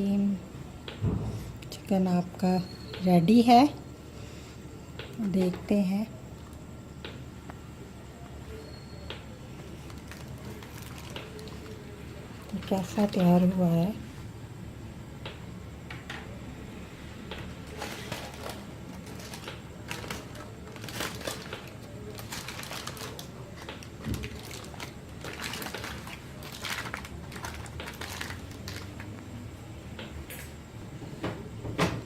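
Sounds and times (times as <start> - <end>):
wrapping crinkling and rustling: 9.6 - 13.6, 17.6 - 29.2.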